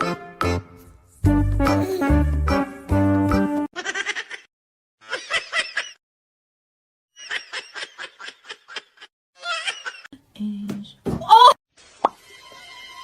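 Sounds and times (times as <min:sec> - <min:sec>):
person snickering: 0:01.8 - 0:02.2.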